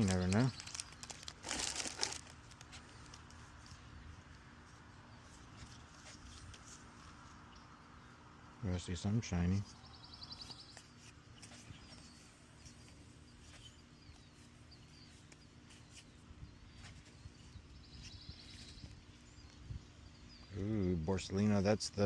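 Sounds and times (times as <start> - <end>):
faint bird chirps: 4.9 - 21.7.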